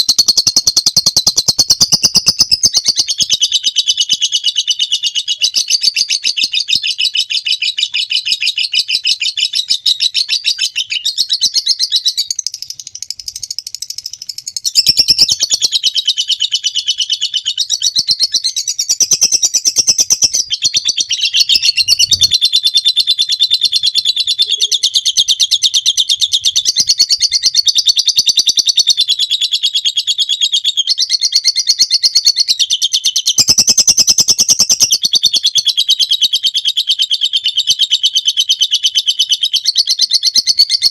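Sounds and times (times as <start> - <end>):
bird chattering trill: 0.0 - 29.4, 33.2 - 40.9.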